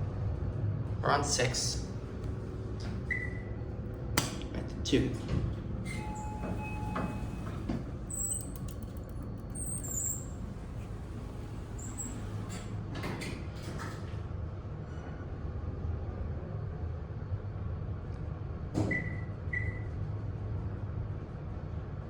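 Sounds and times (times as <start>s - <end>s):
elevator low rumble: 0.0s - 22.0s
elevator clicks: 2.2s - 14.2s
short high squeaks: 5.9s - 10.5s, 11.7s - 12.5s.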